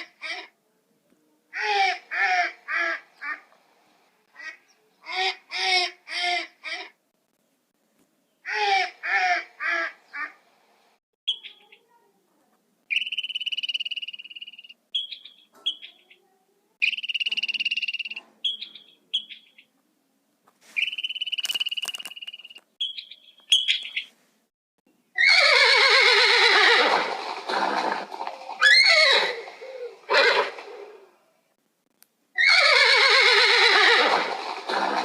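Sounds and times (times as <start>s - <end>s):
horse whinnying: 25.2s - 28.0s, 28.6s - 31.0s, 32.4s - 35.0s.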